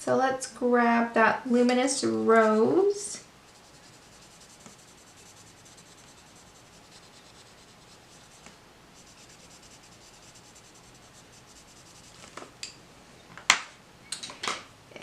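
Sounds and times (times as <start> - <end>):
coloured pencil rubbing on paper: 3.5 - 12.3.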